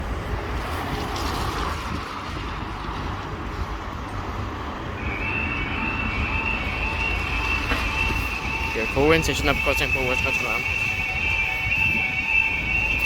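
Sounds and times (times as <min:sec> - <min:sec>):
traffic: 0:00.0 - 0:13.0
wind on microphone: 0:00.0 - 0:13.0
level crossing warning alarm: 0:04.9 - 0:13.0.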